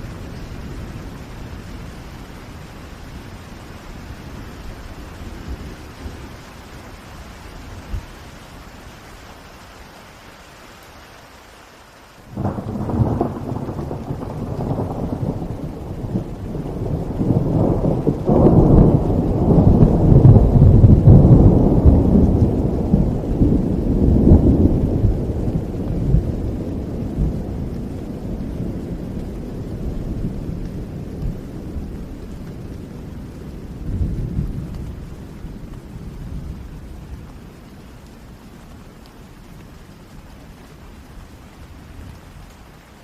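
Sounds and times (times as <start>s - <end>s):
steady rain: 0.0s - 43.0s
thunder rolling: 12.3s - 31.9s.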